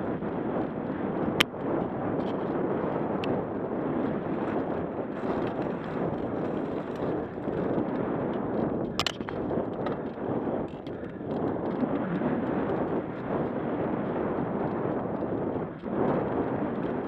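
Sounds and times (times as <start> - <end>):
tyre and trail rumble: 0.0 - 17.0
wind on microphone: 0.0 - 17.0
bike clattering: 8.8 - 11.8.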